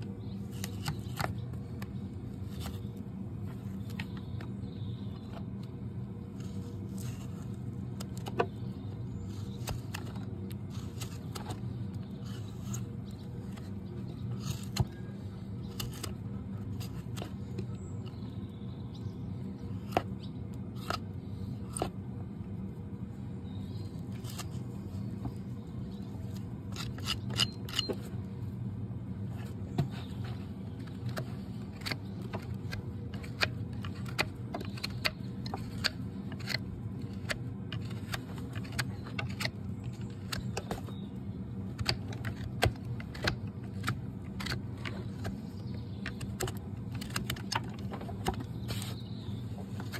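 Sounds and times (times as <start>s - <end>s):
low hum: 0.0s - 49.9s
hoof trimming tools clicking: 26.2s - 28.1s, 29.8s - 49.1s.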